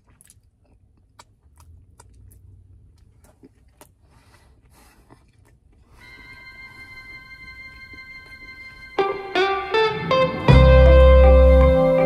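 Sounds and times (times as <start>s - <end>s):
faint chewing and mouth clicks: 0.0s - 6.1s.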